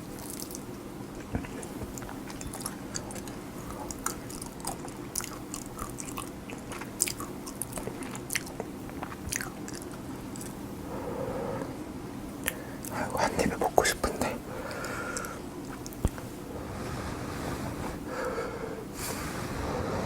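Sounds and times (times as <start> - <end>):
close chewing with mouth smacks: 0.0 - 10.6, 14.7 - 16.3
steady low hum: 0.0 - 20.0.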